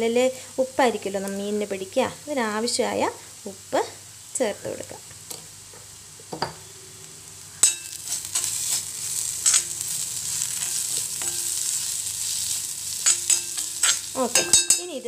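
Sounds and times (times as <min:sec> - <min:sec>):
spices sizzling in oil: 0:00.0 - 0:15.0
spoon stirring and scraping pan: 0:07.5 - 0:15.0
spoon clinking on pan: 0:07.6 - 0:08.5, 0:10.6 - 0:11.7, 0:13.0 - 0:14.9.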